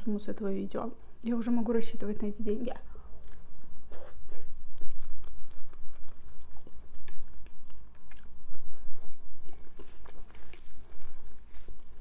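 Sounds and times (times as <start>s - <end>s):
chewing juicy fruit: 2.8s - 12.0s.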